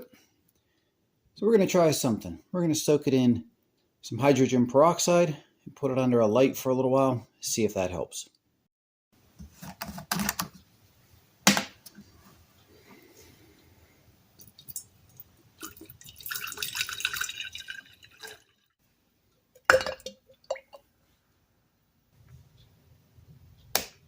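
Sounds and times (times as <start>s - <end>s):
liquid pouring into container: 14.4s - 18.7s, 19.7s - 20.8s
container knocks and clinks: 19.6s - 20.8s.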